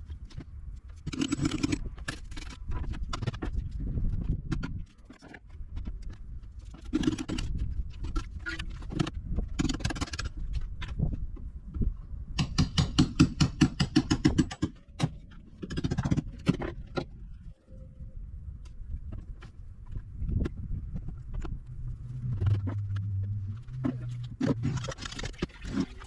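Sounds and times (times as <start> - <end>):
hand tools knocking and scraping: 12.4 - 17.1.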